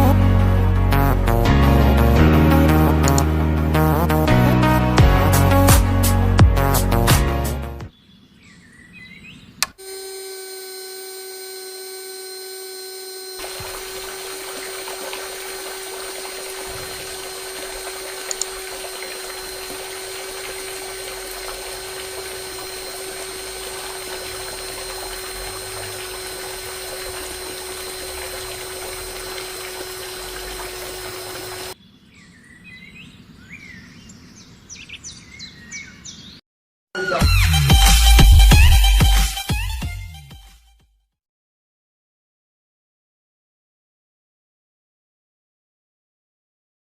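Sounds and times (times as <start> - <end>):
switch click: 9.6 - 9.8
small electric motor whining: 9.6 - 31.8
water pouring and splashing: 13.4 - 31.8.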